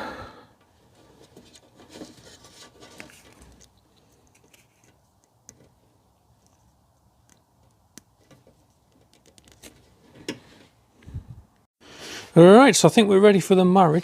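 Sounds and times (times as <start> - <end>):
wires rustling: 0.8 - 11.2.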